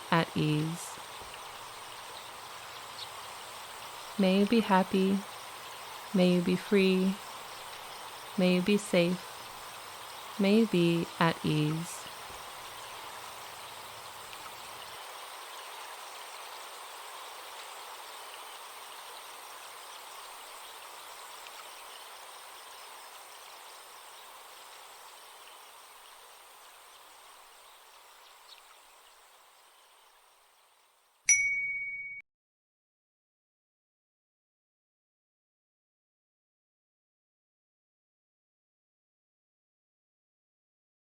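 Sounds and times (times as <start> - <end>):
high insect buzz: 0.0 - 30.6
forest stream: 0.0 - 31.3
bright chime strike: 31.3 - 32.2.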